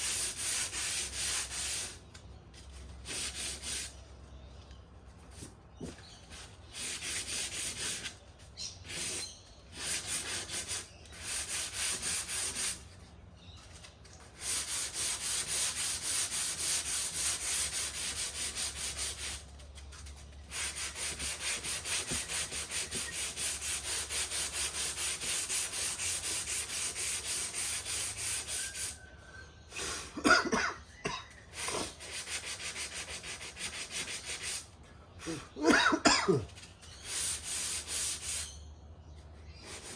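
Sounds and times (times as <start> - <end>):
sanding block rubbing metal panel: 0.0 - 2.0, 3.0 - 4.0, 6.4 - 8.2, 8.8 - 12.9, 14.3 - 19.5, 20.5 - 29.0, 31.6 - 34.7, 37.0 - 38.6, 39.6 - 39.9.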